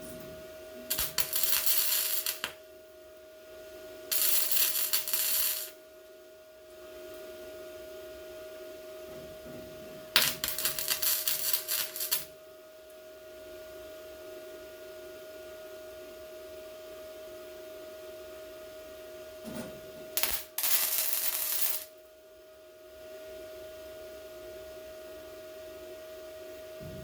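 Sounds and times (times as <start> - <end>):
welder crackling: 0.9 - 2.6, 4.1 - 5.8, 10.2 - 12.3, 20.2 - 21.9
steady hum: 26.8 - 27.0.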